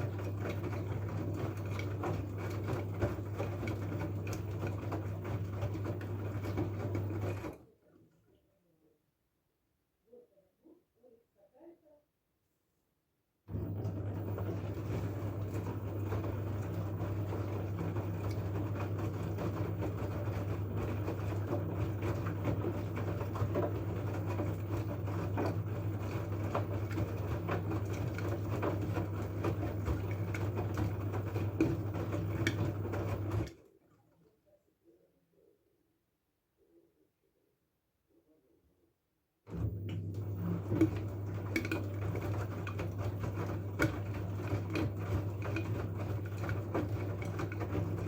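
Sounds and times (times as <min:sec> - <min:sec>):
washing machine humming: 0:00.0 - 0:07.7, 0:13.5 - 0:34.2, 0:39.5 - 0:48.0.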